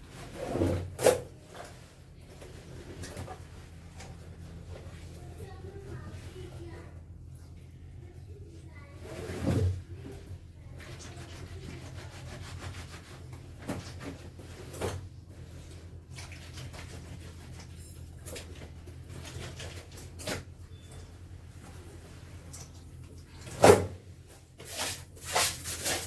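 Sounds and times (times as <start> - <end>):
steady low hum: 0.0 - 25.8
wet fabric rubbed by hand: 9.0 - 14.8.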